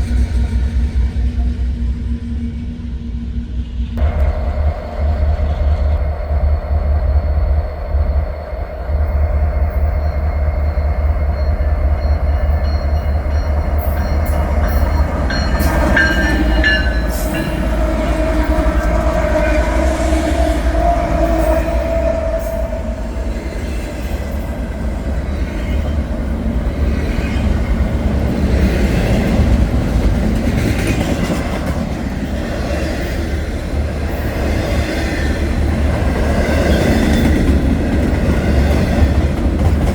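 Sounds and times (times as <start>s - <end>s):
diesel locomotive rumble: 0.0s - 39.9s
wheels clicking on rails: 4.0s - 19.6s
steady tones: 4.0s - 28.4s.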